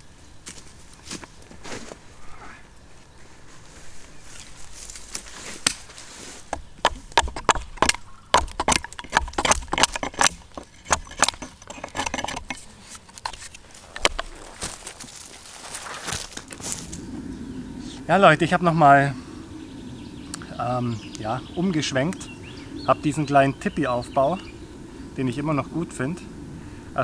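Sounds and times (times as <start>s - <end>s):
sharp clicks and knocks: 6.5s - 15.0s.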